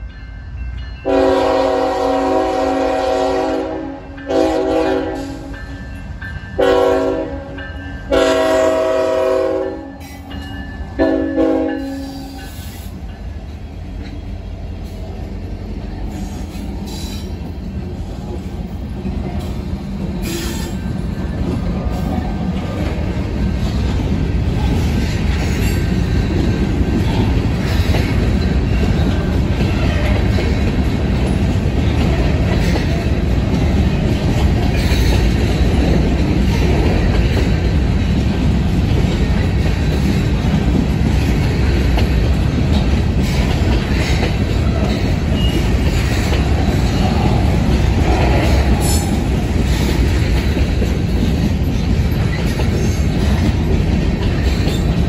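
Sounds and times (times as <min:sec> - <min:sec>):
train rumbling past: 0:00.0 - 0:55.0
wheels clacking on rails: 0:00.0 - 0:55.0
locomotive air horn blasts: 0:01.0 - 0:05.5, 0:06.6 - 0:10.0, 0:11.0 - 0:12.4.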